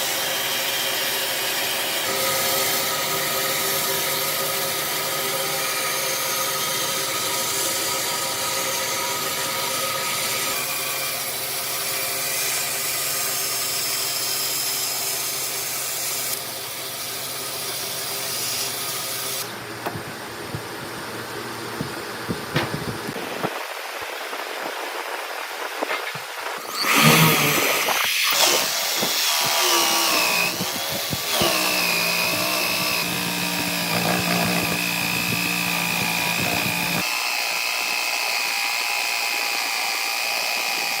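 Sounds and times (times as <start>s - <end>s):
power tool whining on wood: 0.0s - 19.5s, 26.0s - 41.0s
sharp knocks: 21.8s - 23.2s.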